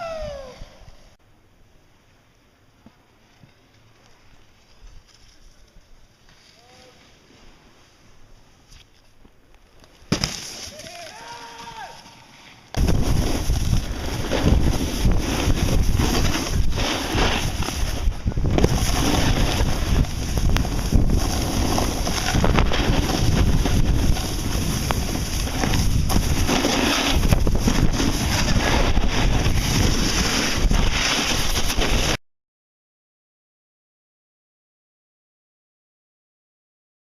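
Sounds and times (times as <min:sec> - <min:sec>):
wind buffeting microphone: 0:12.8 - 0:31.6.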